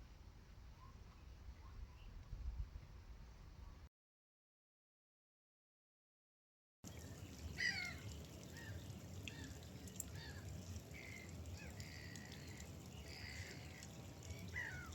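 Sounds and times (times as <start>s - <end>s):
gulls calling: 6.9s - 14.9s.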